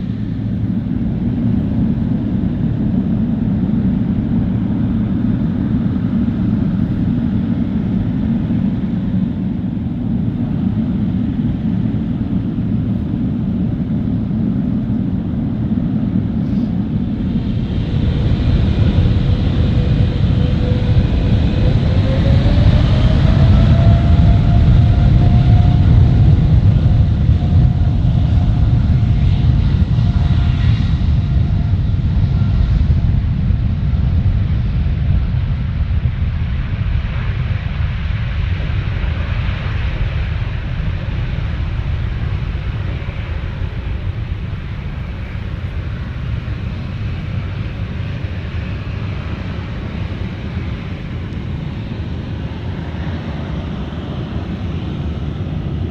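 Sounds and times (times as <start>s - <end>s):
jet engines low rumble: 0.0s - 55.9s.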